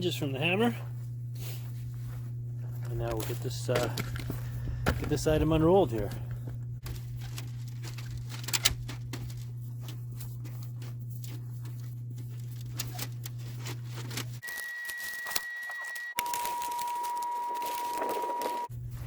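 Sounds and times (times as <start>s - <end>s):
steady low hum: 0.0s - 14.4s, 18.6s - 19.0s
plastic crinkling and ticking: 2.9s - 18.7s.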